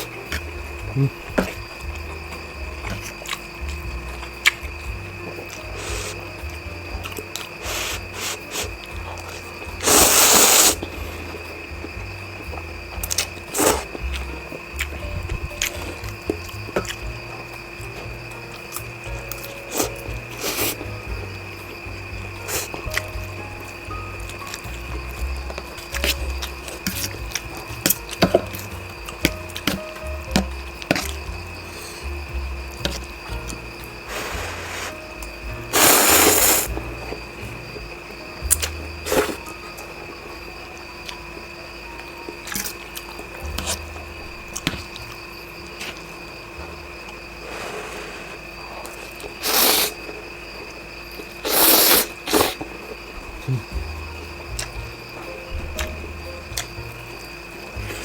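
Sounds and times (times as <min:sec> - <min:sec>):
low pulsing music bass: 0:00.0 - 0:10.1, 0:10.8 - 0:19.4, 0:20.0 - 0:39.7, 0:43.4 - 0:45.4, 0:53.2 - 0:58.0
faint steady hum: 0:00.0 - 0:58.0
noodles being slurped: 0:07.3 - 0:11.5, 0:13.0 - 0:14.2, 0:35.7 - 0:36.8, 0:47.5 - 0:50.1, 0:51.4 - 0:52.8.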